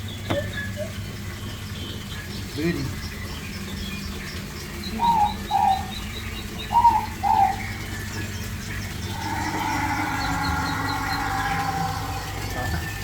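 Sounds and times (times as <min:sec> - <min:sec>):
whistled bird calls: 0:04.9 - 0:07.8, 0:09.0 - 0:13.0.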